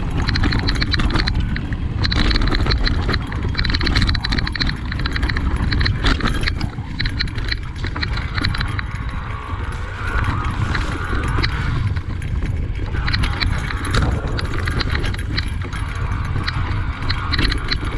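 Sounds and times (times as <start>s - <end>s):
bike clicks and clatters: 0.0s - 17.9s
steady low rumble: 0.0s - 17.9s
tyres crunching on rock and dirt: 0.0s - 17.9s.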